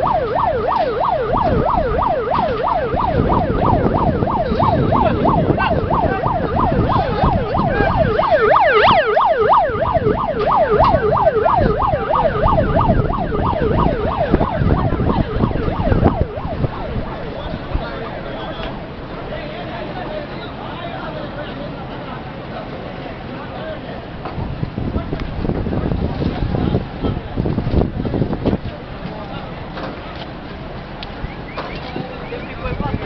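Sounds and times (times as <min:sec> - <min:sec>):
higher siren sweep: 0:00.0 - 0:18.6
emergency siren yelping: 0:00.0 - 0:18.9, 0:31.1 - 0:33.0.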